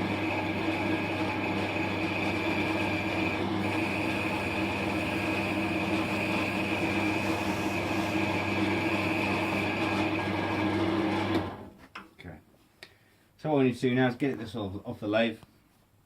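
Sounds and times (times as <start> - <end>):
wood lathe motor hum and whine: 0.0 - 11.7.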